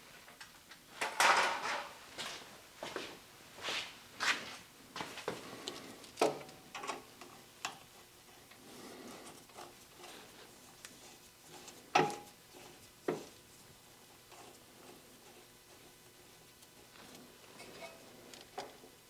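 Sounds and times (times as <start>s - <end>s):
knocks of hoses and metal fittings: 11.9s - 12.3s.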